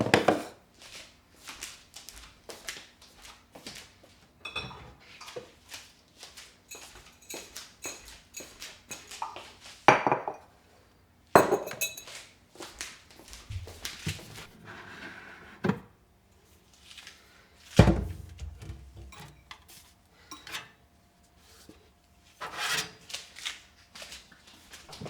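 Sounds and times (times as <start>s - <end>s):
heavy thump: 17.8s - 19.0s
objects knocked and set down: 17.8s - 19.7s.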